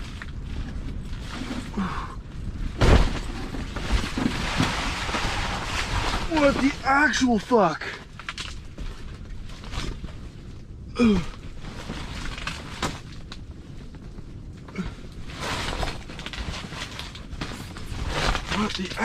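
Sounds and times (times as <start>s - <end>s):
wind rumbling on microphone: 0.0s - 19.0s
man groaning: 10.9s - 11.4s.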